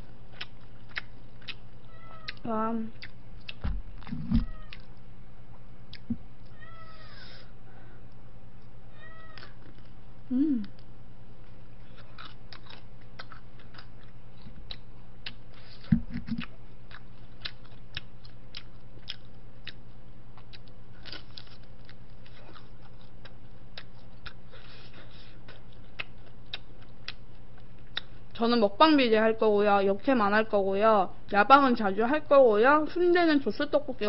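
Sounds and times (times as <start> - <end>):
crunching and chewing fried snacks: 0.0 - 2.4, 10.6 - 28.4
low steady hum: 0.0 - 34.0.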